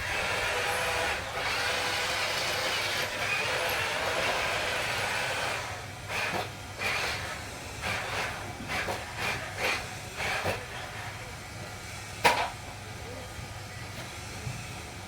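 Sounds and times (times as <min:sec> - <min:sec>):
small electric motors whirring: 0:00.0 - 0:11.3.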